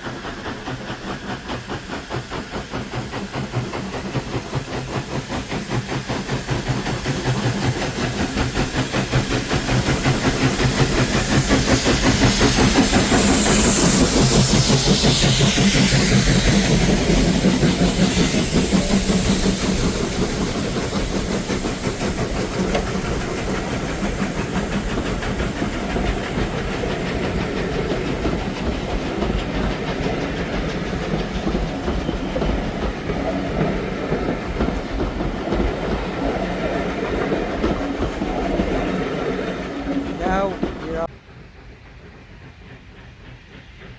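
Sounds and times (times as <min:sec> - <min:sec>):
steam train passing: 0:00.0 - 0:43.9
train wheels clacking over rail joints: 0:00.0 - 0:43.9
steam hiss falling in pitch: 0:06.7 - 0:40.6.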